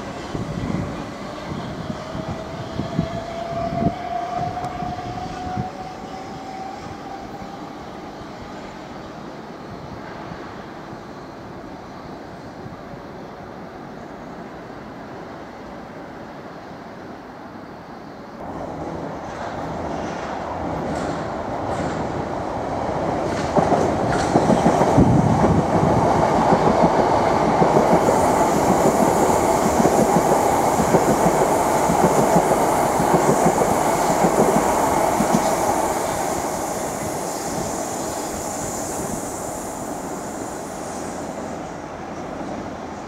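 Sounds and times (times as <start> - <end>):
train rumble: 18.4 - 43.0.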